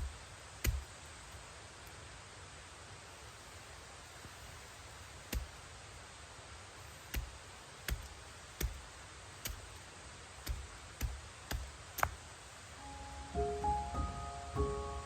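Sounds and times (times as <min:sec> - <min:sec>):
faint steady hiss: 0:00.0 - 0:15.0
music: 0:12.8 - 0:15.0.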